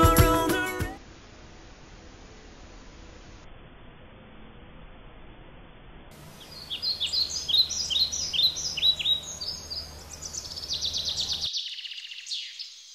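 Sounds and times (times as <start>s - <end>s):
songbirds chirping: 6.1s - 12.9s
bird fast trill: 6.3s - 12.9s.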